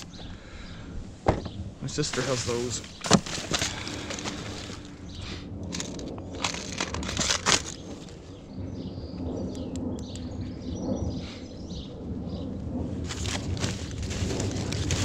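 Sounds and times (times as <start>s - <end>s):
outdoor background noise: 0.0s - 15.0s
bags and objects rustling: 2.0s - 8.3s, 13.0s - 15.0s.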